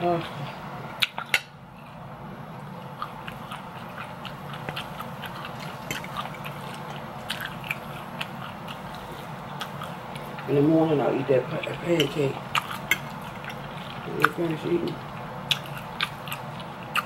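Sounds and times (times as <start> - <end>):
person chewing food: 1.0 - 10.6, 11.5 - 17.0
wet mouth clicks: 12.5 - 17.0.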